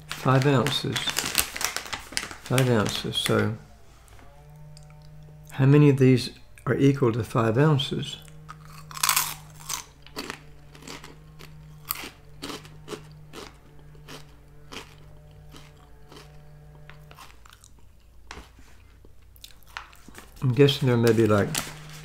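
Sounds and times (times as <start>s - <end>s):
person crunching snack: 8.3s - 20.4s.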